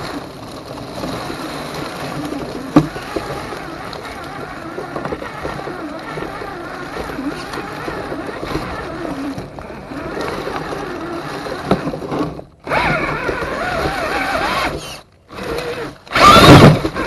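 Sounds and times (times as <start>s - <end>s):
electric motor and gears whining: 0.0s - 17.0s
loud rough burst: 13.8s - 17.0s.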